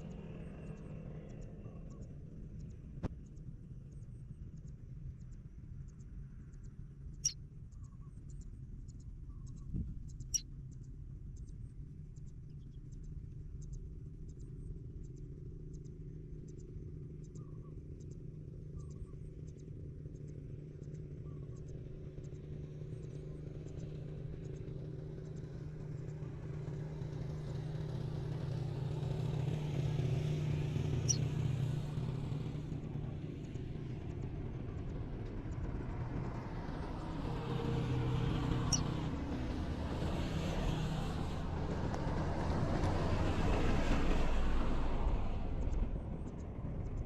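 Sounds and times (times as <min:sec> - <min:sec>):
faint high chirping ticks: 0:04.6 - 0:11.6, 0:31.0 - 0:31.3
vehicle engine humming: 0:25.8 - 0:47.0.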